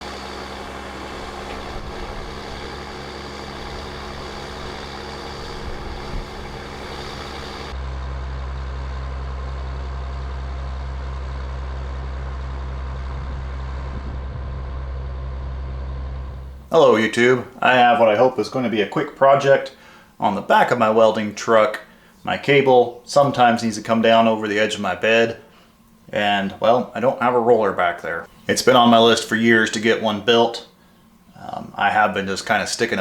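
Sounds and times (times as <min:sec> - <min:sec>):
truck engine humming: 0:00.0 - 0:33.0.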